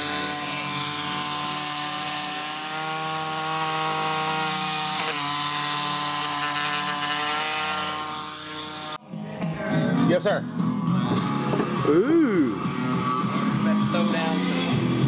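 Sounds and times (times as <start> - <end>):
electric power tool running: 0.0 - 9.0.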